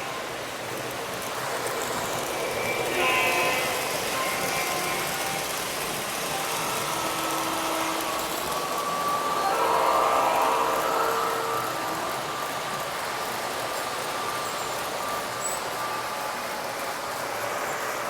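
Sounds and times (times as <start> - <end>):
model trains rumbling on track: 0.0 - 18.0
model train horn blasts: 2.1 - 13.2.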